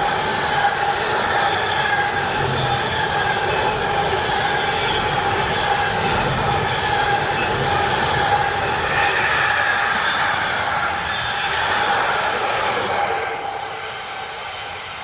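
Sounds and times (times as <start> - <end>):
train rolling past: 0.0 - 15.0
wheels squealing on rail: 0.0 - 15.0.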